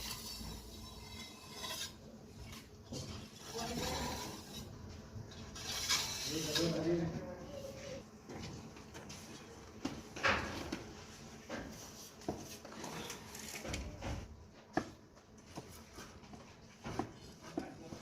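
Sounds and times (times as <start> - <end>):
plastering tools scraping cement: 0.0 - 7.2.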